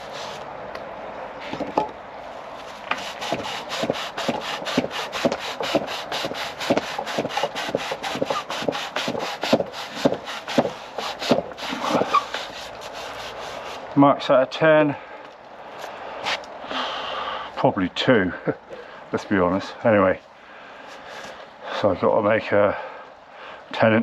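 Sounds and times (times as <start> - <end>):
tool scraping wood on lathe: 2.6 - 13.9.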